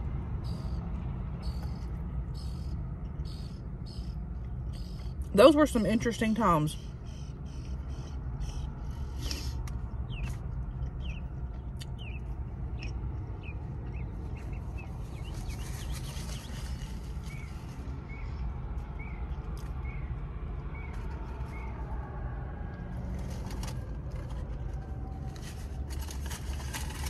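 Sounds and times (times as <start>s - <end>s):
steady low rumble: 0.0s - 27.0s
bird calling: 1.4s - 5.2s.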